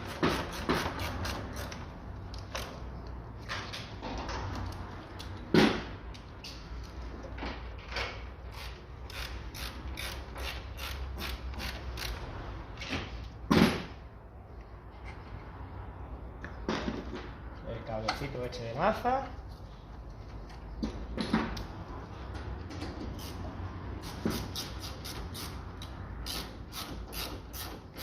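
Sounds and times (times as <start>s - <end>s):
ratchet wrench clicking: 8.5s - 12.3s, 24.0s - 28.0s.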